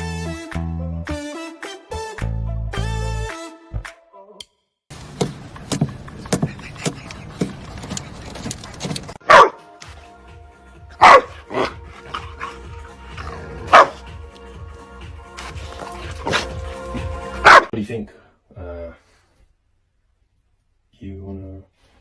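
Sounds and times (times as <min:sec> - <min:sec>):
background music: 0:00.0 - 0:04.6, 0:09.2 - 0:17.7
dog barking: 0:09.2 - 0:09.7, 0:11.0 - 0:12.6, 0:13.5 - 0:14.1, 0:16.2 - 0:16.8, 0:17.4 - 0:17.7.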